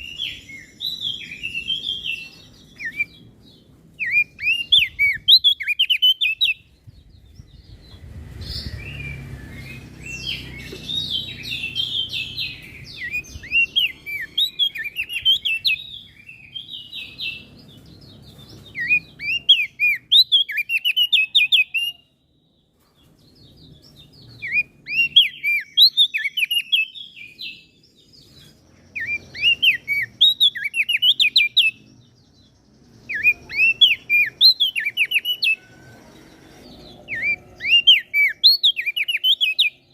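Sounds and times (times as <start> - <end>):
songbird chirping: 0.0 - 39.9
faint low rumble: 6.6 - 14.0.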